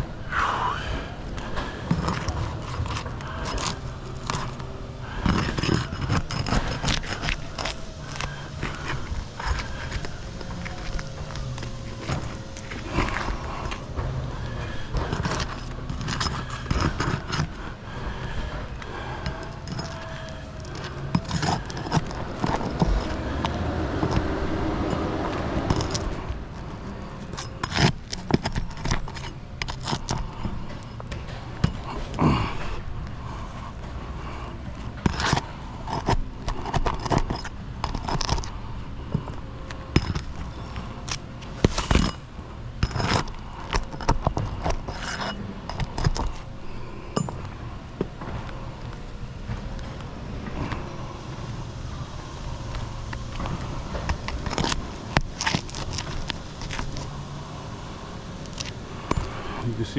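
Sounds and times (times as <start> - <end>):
wavering hum: 0.0 - 59.9
hand tools scraping shingles: 1.4 - 47.5, 52.6 - 57.2, 58.4 - 59.9.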